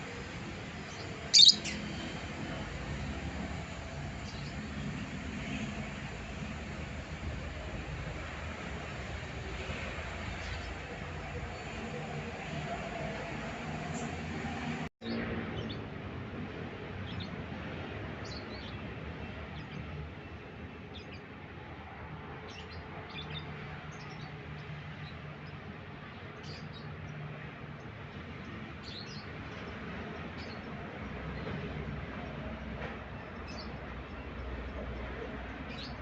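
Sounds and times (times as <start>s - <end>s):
bird chirping: 0.9s - 1.9s.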